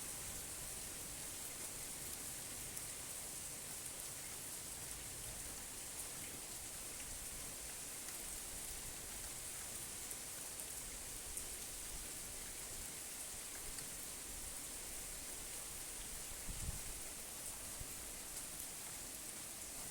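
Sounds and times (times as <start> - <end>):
steady rain hiss: 0.0 - 19.9
raindrop ticks: 6.2 - 12.6, 13.4 - 14.0.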